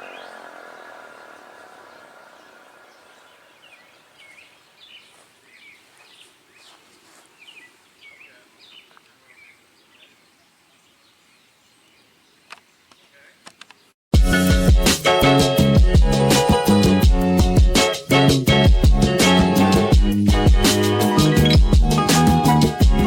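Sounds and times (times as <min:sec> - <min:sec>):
birds chirping: 0:00.0 - 0:14.0, 0:20.8 - 0:22.6.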